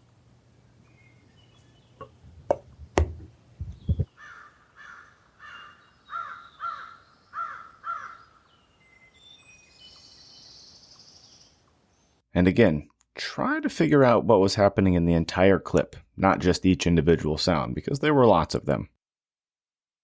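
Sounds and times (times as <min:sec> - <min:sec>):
low thuds: 0:02.0 - 0:04.1
sharp knocks: 0:02.0 - 0:04.1
animal calling: 0:03.7 - 0:08.5.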